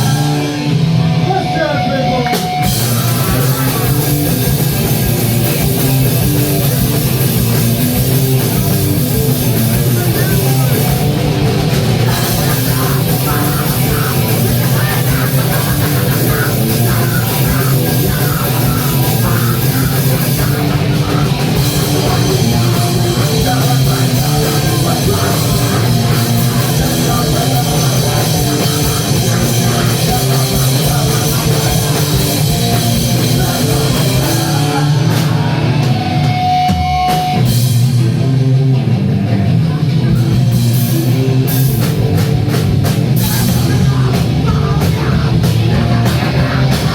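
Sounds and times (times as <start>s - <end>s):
live punk metal band playing: 0.0s - 46.9s.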